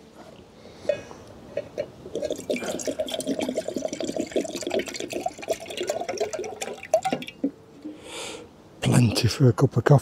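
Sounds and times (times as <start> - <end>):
water pouring into metal tin: 2.1 - 7.4.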